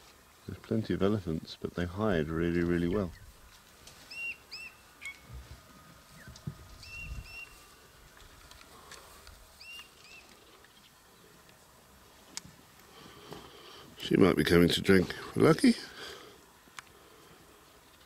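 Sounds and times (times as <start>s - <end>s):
bird calling clear notes: 4.1s - 5.3s, 6.2s - 7.9s, 9.6s - 11.3s.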